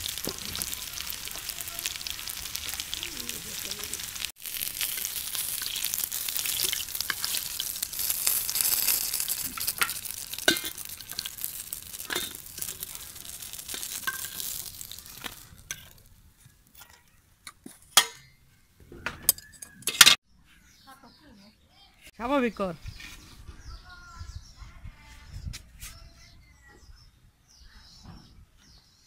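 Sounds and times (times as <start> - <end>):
pakoras sizzling in oil: 0.0 - 18.2
metal ladle scraping pan: 4.6 - 16.0.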